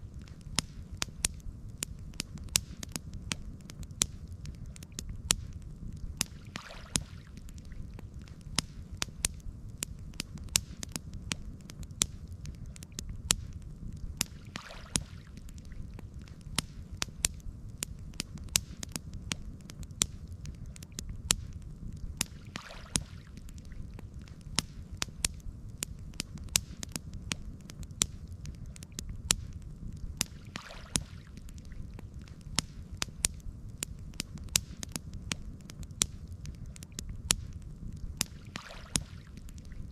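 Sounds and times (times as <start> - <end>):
campfire crackling: 0.0 - 39.9
soft whoosh of fire: 0.0 - 39.9.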